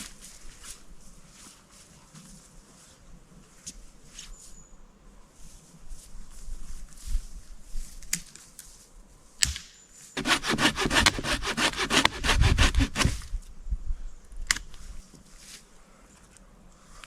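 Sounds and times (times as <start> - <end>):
sharp knock: 10.2 - 13.0
saw cutting wood: 10.2 - 13.2.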